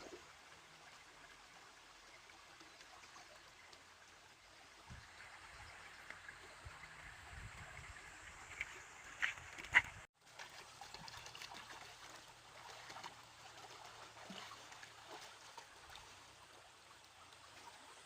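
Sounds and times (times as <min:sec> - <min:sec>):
water trickling and splashing: 0:00.0 - 0:18.0.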